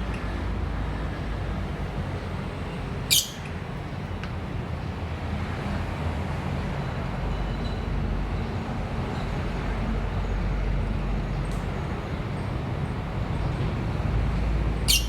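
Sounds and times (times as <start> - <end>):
bird shrieking: 3.1 - 3.5.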